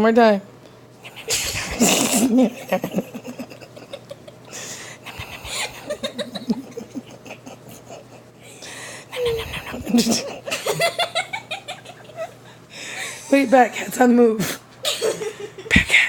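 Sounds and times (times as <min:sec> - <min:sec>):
girl giggling: 0:01.0 - 0:08.3, 0:09.1 - 0:12.6, 0:14.8 - 0:15.9.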